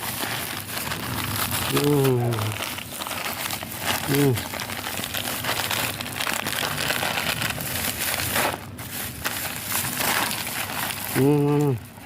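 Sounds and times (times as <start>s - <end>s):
crinkling and crunching: 0.0s - 12.0s.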